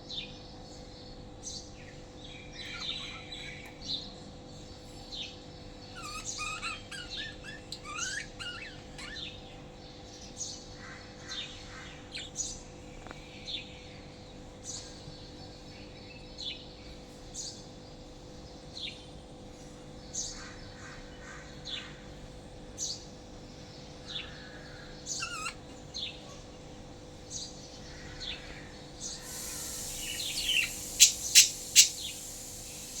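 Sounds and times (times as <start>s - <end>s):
lovebirds chirping: 5.6s - 10.6s, 23.6s - 33.0s
rush of hiss: 29.1s - 33.0s.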